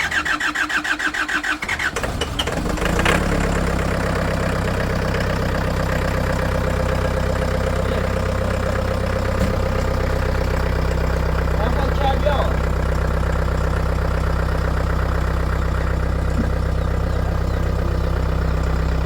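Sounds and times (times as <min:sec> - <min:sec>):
engine starter cranking: 0:00.0 - 0:04.3
engine idling: 0:00.0 - 0:19.0.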